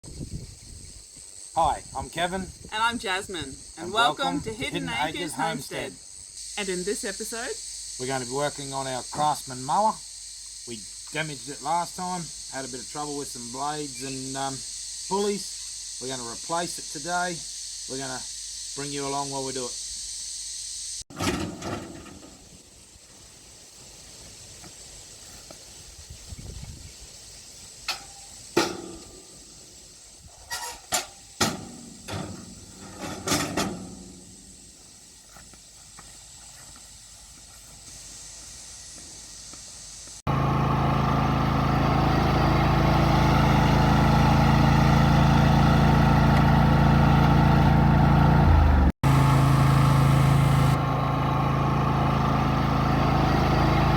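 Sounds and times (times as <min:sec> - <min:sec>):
steady high hiss: 0:00.1 - 0:21.1, 0:21.9 - 0:40.3
ride-on mower engine running: 0:40.3 - 0:53.9.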